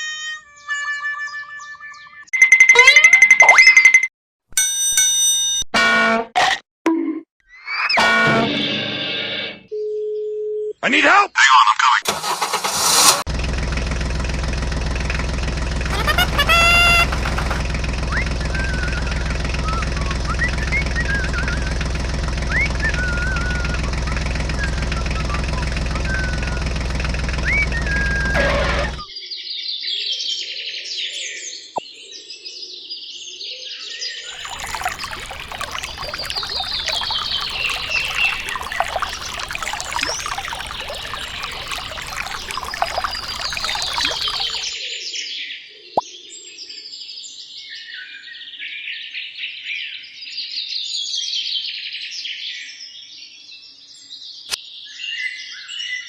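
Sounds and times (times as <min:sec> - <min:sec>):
birds chirping: 0:34.4 - 0:44.8.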